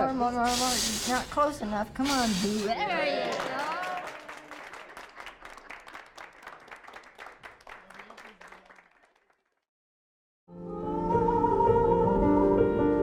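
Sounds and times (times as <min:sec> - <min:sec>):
small group clapping: 0:02.8 - 0:09.7.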